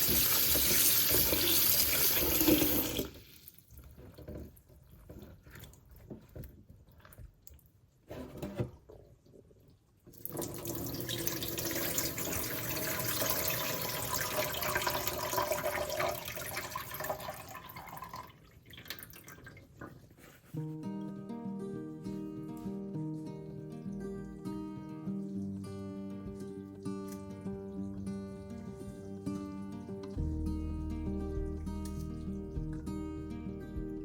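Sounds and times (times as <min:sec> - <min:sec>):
tap water running into sink: 0:00.0 - 0:07.3, 0:10.1 - 0:20.0
quiet drips: 0:03.3 - 0:08.1, 0:22.1 - 0:30.3
small handling sounds: 0:19.7 - 0:20.8.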